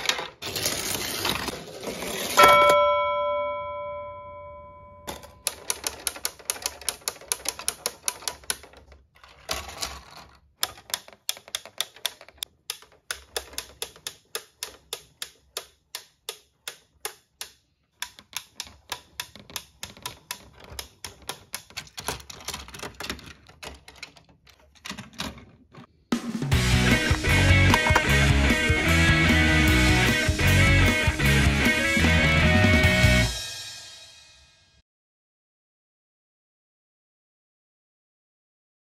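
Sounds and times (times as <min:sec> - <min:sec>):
toy lift mechanism clicking: 0:05.1 - 0:25.9, 0:27.0 - 0:28.1.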